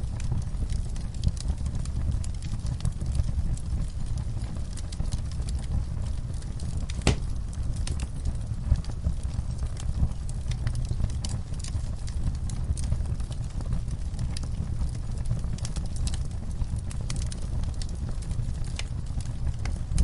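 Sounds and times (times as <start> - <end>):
fire crackling: 0.0 - 20.0
fire rumbling: 0.0 - 20.0
sharp pop of fire: 6.9 - 7.4.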